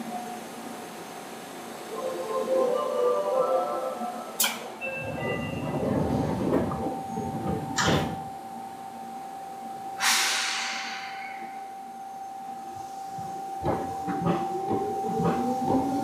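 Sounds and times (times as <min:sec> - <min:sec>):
train rumble: 0:00.0 - 0:08.6, 0:12.6 - 0:16.0
train knock: 0:05.2 - 0:08.3, 0:13.1 - 0:16.0
compressed air hiss: 0:10.0 - 0:11.4
faint steady tone: 0:10.8 - 0:14.0.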